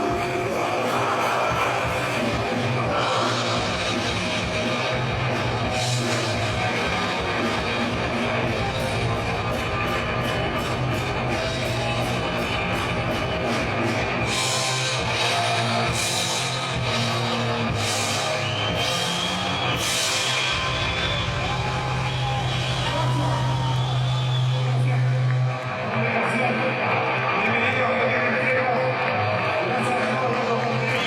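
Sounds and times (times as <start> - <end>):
drum kit: 0.0 - 25.5
distorted electric guitars: 0.0 - 31.0.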